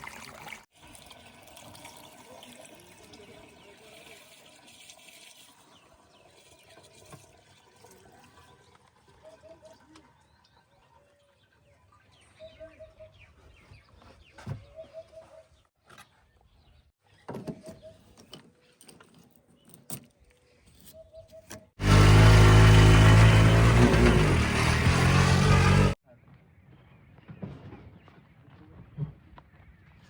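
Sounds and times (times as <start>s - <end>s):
vehicle engine droning: 21.8s - 26.0s.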